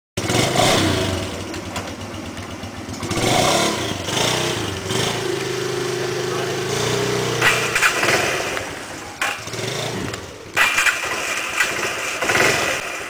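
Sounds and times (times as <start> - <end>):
atv engine revving: 0.2 - 13.0.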